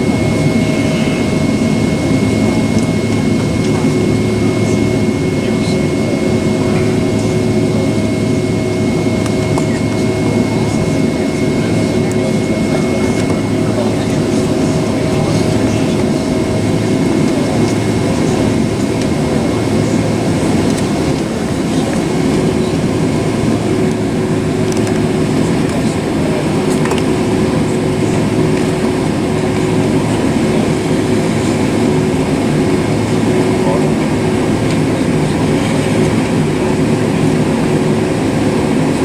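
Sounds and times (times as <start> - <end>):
jet engine drone: 0.0 - 39.0.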